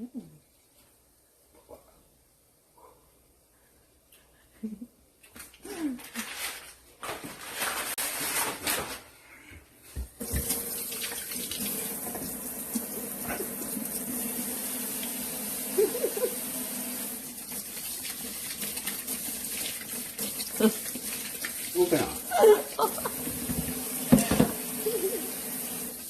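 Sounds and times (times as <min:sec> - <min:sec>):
tap running into sink: 0:10.2 - 0:12.8, 0:23.1 - 0:24.8.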